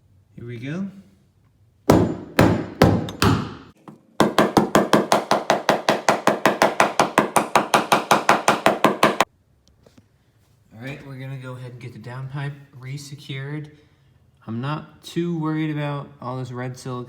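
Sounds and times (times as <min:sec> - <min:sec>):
hammer striking car metal: 0:01.9 - 0:09.3.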